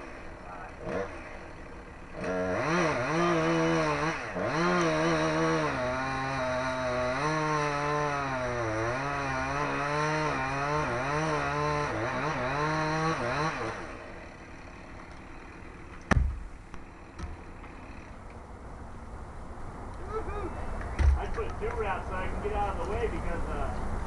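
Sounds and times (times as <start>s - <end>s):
chainsaw cutting: 0.0s - 18.4s
sharp knocks: 15.9s - 17.8s, 21.0s - 21.4s.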